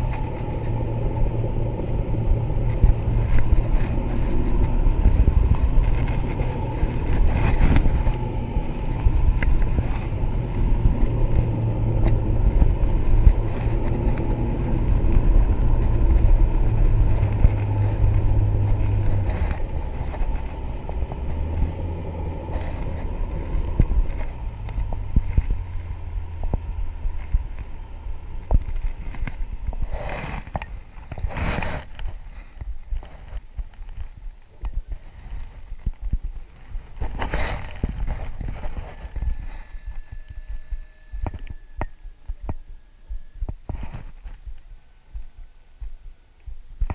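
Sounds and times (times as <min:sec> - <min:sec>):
outboard motor running: 0:00.0 - 0:32.6.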